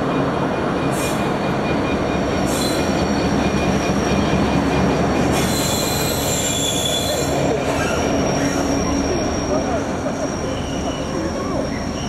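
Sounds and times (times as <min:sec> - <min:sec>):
freight train wheels rumbling: 0:00.0 - 0:12.0
high-pitched wheel squeal: 0:05.3 - 0:12.0.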